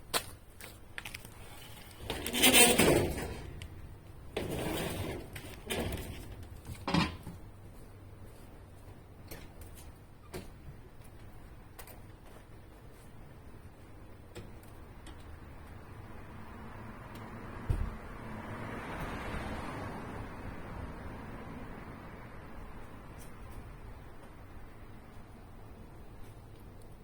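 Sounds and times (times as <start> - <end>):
handling scrapes: 1.1 - 3.7.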